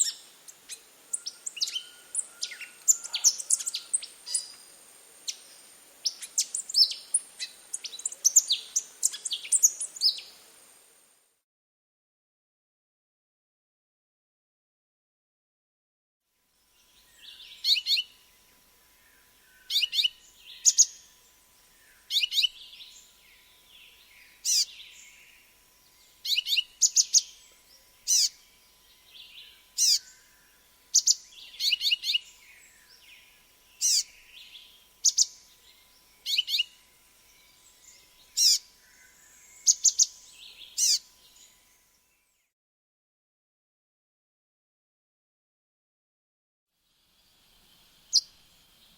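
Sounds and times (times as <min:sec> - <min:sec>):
bird chirping: 0:00.0 - 0:10.6, 0:16.8 - 0:42.4, 0:47.6 - 0:48.9.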